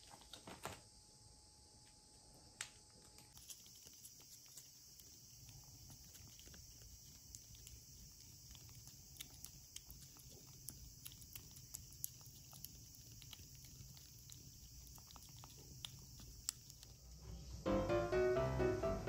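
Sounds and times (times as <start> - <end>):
kitten licking wet tongue clicks: 3.4 - 17.2.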